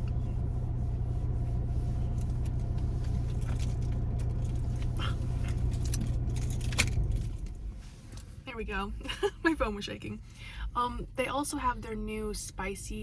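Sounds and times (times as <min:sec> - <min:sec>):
car engine idling: 0:00.0 - 0:09.3.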